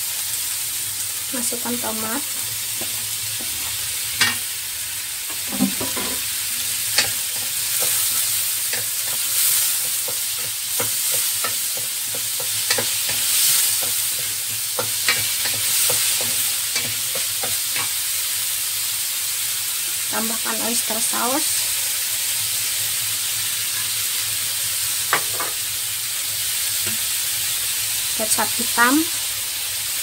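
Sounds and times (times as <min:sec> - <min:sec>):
food sizzling in a wok: 0:00.0 - 0:30.0
spatula scraping and tapping pan: 0:02.3 - 0:04.4, 0:05.3 - 0:06.3, 0:06.9 - 0:18.0.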